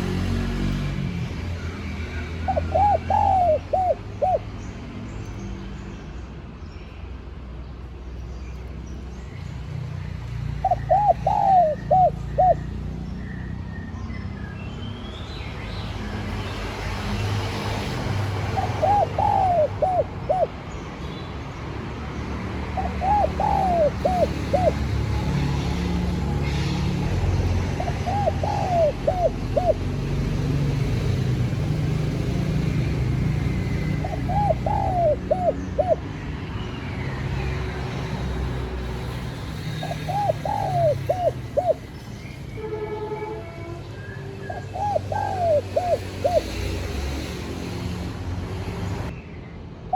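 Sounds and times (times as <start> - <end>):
dove cooing: 2.4 - 4.5, 10.6 - 12.8, 18.2 - 20.6, 22.7 - 26.8, 27.5 - 30.4, 33.3 - 36.1, 39.8 - 41.9, 44.5 - 46.7.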